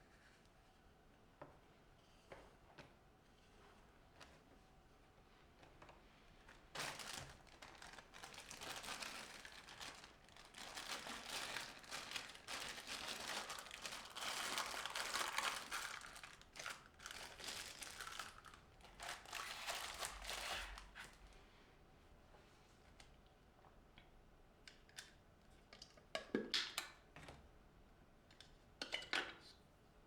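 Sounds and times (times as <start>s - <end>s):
crinkling and rustling: 5.5s - 21.3s.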